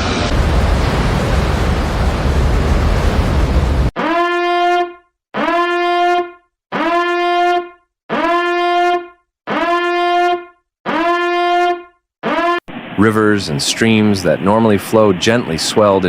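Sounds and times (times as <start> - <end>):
horn blasts: 4.0 - 12.6.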